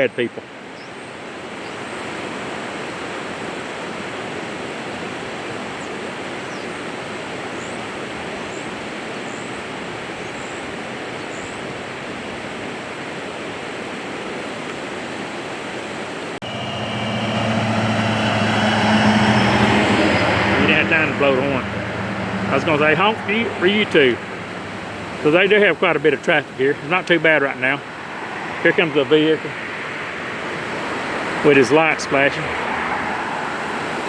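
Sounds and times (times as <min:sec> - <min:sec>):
steady rushing noise: 0:15.6 - 0:34.0
heavy vehicle engine drone: 0:16.4 - 0:26.6.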